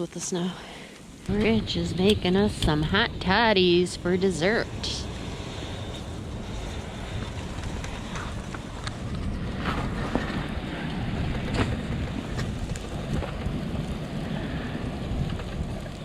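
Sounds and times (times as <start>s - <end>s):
wind buffeting microphone: 0.5s - 16.0s
small clicks and crackles: 5.1s - 16.0s.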